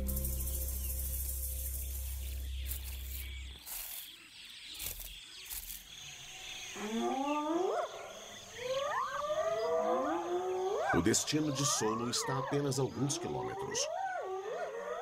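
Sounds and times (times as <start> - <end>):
music: 0.0 - 2.9
wild animals calling: 6.8 - 15.0.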